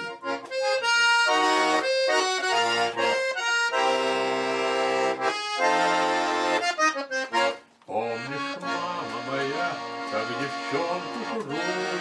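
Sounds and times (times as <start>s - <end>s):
button accordion playing chords: 0.0s - 12.0s.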